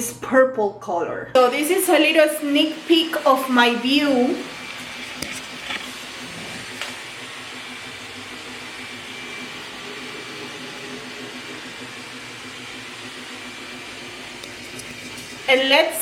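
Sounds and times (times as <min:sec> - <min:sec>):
printer fans and motors whirring: 0:01.4 - 0:16.0.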